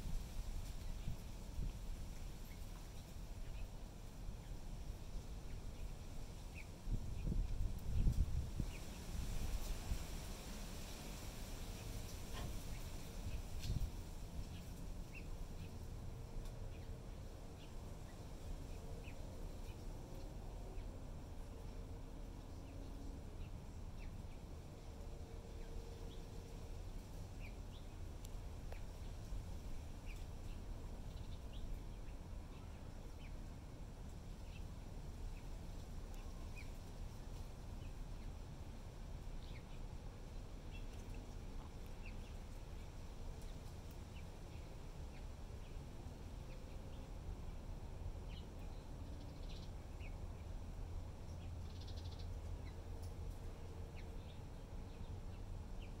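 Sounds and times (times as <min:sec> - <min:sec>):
steady low rumble: 0:00.0 - 0:10.2, 0:11.4 - 0:56.0.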